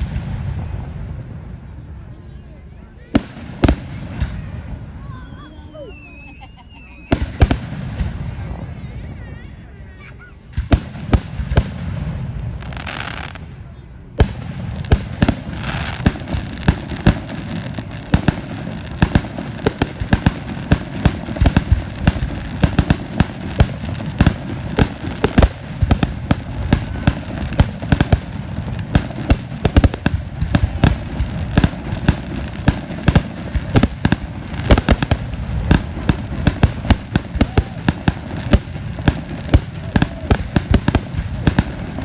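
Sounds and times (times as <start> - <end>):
fireworks banging: 3.0 - 9.2, 10.0 - 42.0.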